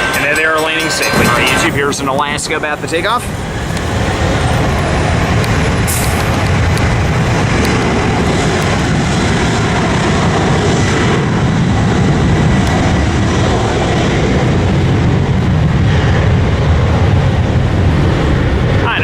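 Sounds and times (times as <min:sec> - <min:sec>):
jet engines at takeoff power: 0:00.0 - 0:19.0.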